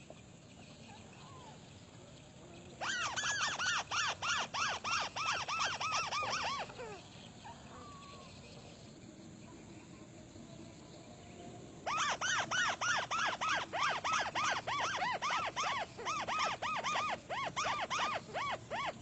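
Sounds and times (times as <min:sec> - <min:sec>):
high insect drone: 0:00.1 - 0:19.0.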